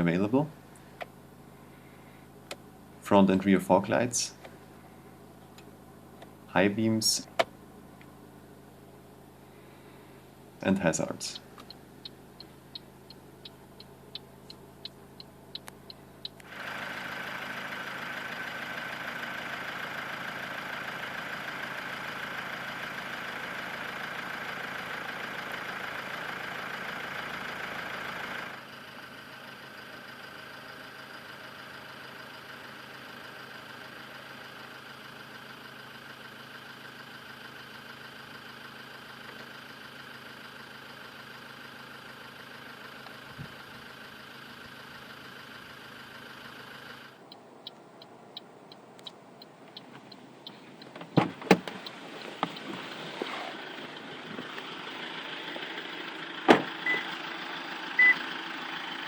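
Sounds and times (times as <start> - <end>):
diesel engine running with whine: 0.0 - 59.0
hazard flasher relay ticking: 47.2 - 51.1.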